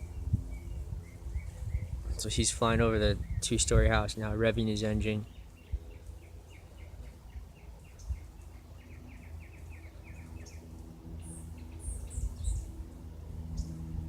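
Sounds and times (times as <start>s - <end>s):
propeller plane droning overhead: 0.0s - 14.0s
small bird chirping: 5.2s - 12.8s.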